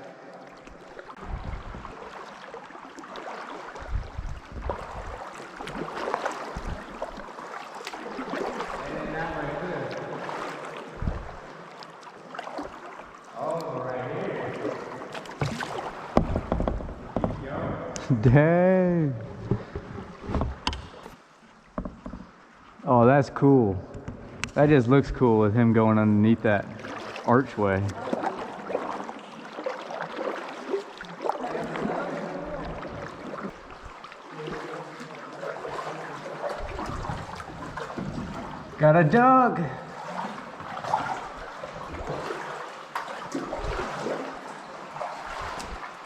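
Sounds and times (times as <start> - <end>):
kayak paddle splashing in water: 0.0 - 18.1, 19.2 - 22.6, 26.2 - 46.0
sharp knocks: 15.4 - 17.5.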